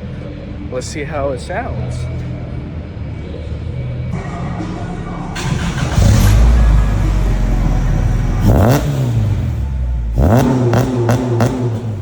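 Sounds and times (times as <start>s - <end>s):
car engine idling and revving: 2.0s - 12.0s
sharp engine blips: 4.2s - 10.7s.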